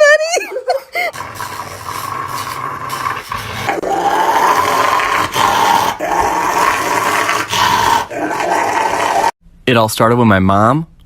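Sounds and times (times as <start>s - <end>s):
dog growling: 1.1s - 9.4s.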